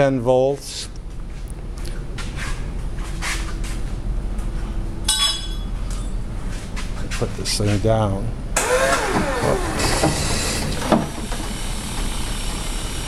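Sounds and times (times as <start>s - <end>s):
steady low hum: 0.0s - 13.0s
ringing metallic clink: 5.1s - 6.2s.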